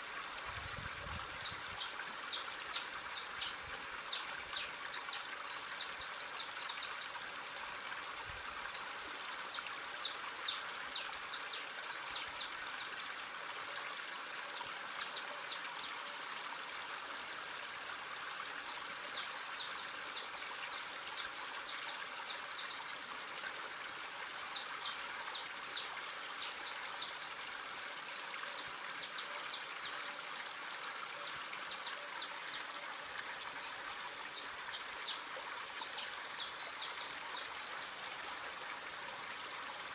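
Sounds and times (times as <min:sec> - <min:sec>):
stream rushing: 0:31.6 - 0:39.9
birds chirping rapidly: 0:39.4 - 0:39.9.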